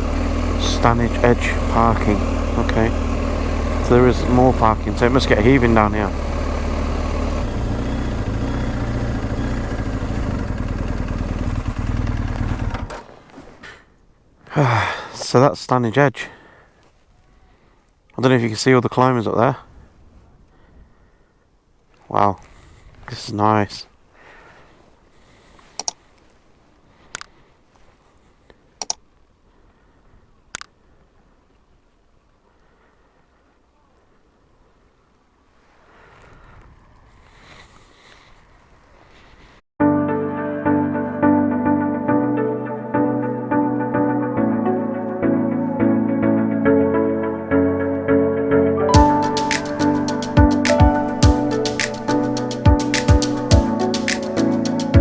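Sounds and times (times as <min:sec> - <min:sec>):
motorcycle engine running: 0:00.0 - 0:13.0, 0:49.0 - 0:55.0
sharp double clicks: 0:25.8 - 0:26.0, 0:28.8 - 0:29.0, 0:30.5 - 0:30.7.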